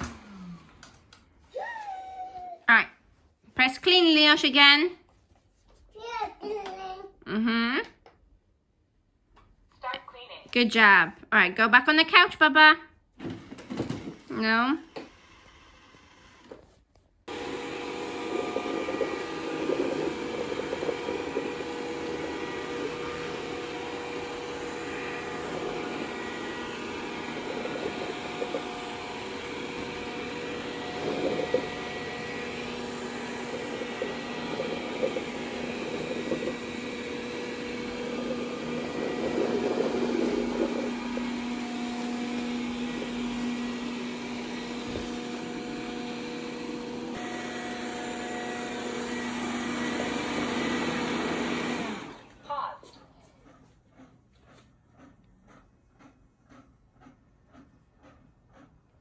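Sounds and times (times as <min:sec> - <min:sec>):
robot vacuum suction motor: 0:13.2 - 0:16.7, 0:17.3 - 0:52.4.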